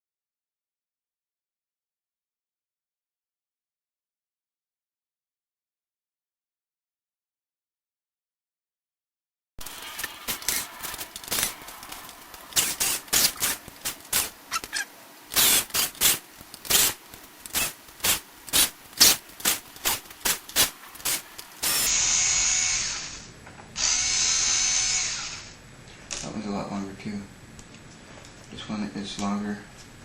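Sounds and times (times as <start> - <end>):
electric screwdriver buzzing: 10.2 - 11.6, 12.4 - 25.6.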